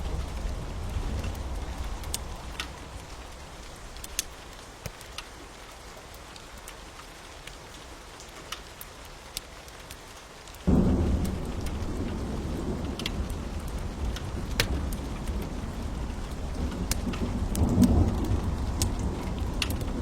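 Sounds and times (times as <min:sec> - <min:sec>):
thunder rumble: 0:00.0 - 0:04.5, 0:10.7 - 0:20.0
wood fire crackling: 0:00.0 - 0:05.3, 0:08.2 - 0:20.0
steady rain: 0:00.0 - 0:20.0.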